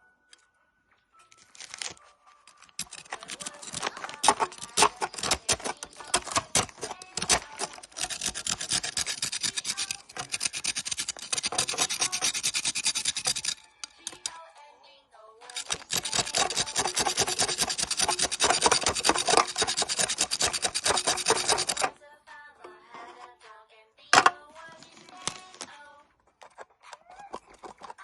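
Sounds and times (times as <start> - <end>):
candy wrapper crinkling: 1.2 - 14.3, 24.7 - 25.7.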